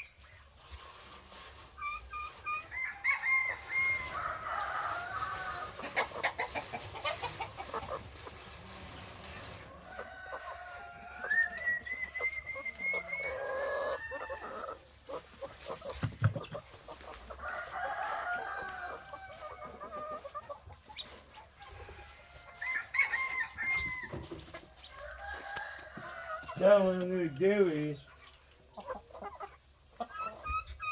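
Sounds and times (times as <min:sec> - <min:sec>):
chickens clucking: 0:00.0 - 0:30.9
rooster crowing: 0:02.7 - 0:05.8, 0:09.7 - 0:11.6, 0:17.4 - 0:19.7, 0:21.9 - 0:24.2, 0:25.0 - 0:26.7.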